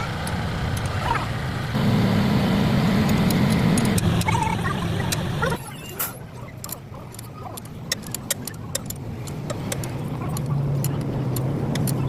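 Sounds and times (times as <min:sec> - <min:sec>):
engine humming: 0:00.0 - 0:12.0
sharp metallic clicks and taps: 0:03.0 - 0:04.4, 0:06.6 - 0:12.0.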